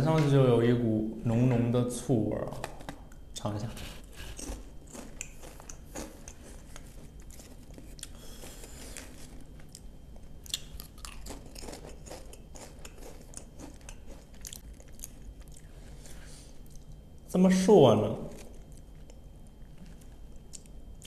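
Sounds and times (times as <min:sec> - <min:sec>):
person crunching chips: 0:04.1 - 0:16.8.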